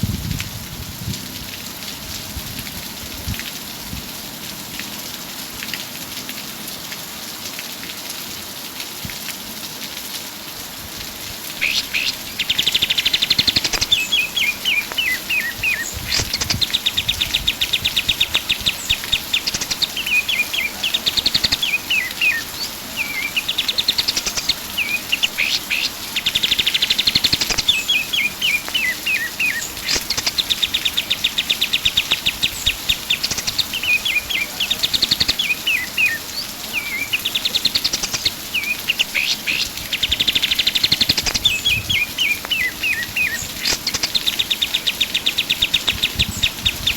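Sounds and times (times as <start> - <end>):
songbird singing trills and chirps: 11.6 - 46.9.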